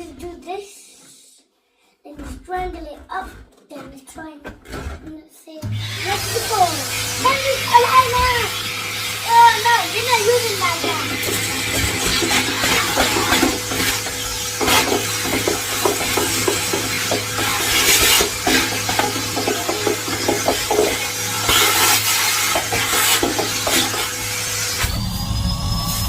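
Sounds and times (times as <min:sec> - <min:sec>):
rubbing and scraping strokes: 0:02.1 - 0:05.2, 0:05.9 - 0:24.9
vacuum cleaner humming: 0:05.6 - 0:26.0.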